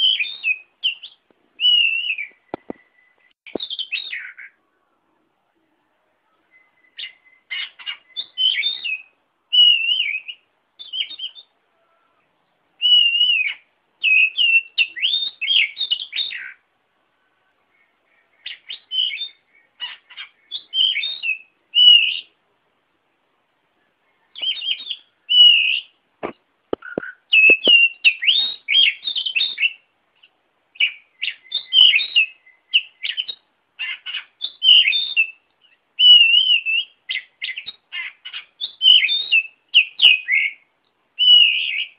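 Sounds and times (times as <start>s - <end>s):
bird singing chirps and whistles: 0.0s - 4.6s, 6.3s - 11.6s, 12.8s - 16.6s, 18.3s - 22.4s, 24.2s - 26.0s, 26.8s - 41.9s.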